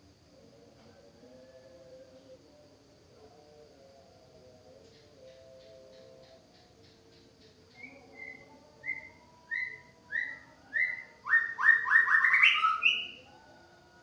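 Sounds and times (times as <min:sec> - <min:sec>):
bird singing whistled notes: 0:07.1 - 0:13.2.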